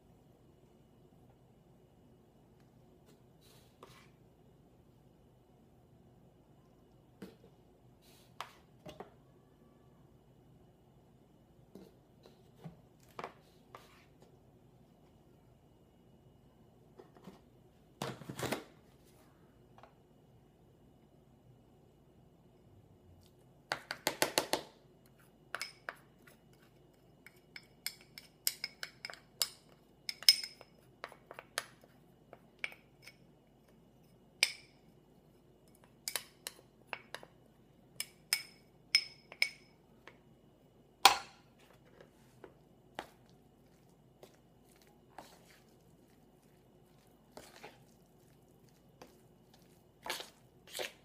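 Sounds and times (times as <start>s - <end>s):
spoon clinking against bowl: 38.0s - 39.7s.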